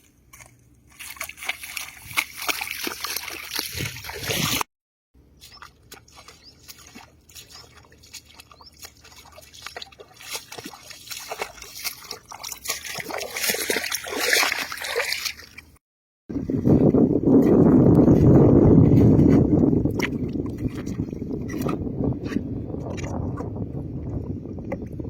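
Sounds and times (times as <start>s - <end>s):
light splashes: 0.3s - 4.6s, 5.4s - 15.8s
shallow water sloshing: 0.3s - 4.6s, 5.4s - 15.8s.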